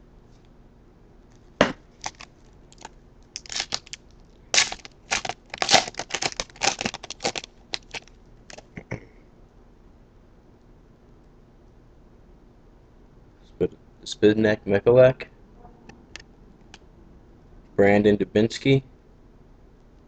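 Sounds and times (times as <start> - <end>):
foil wrapper tearing and crinkling: 2.0 - 8.7.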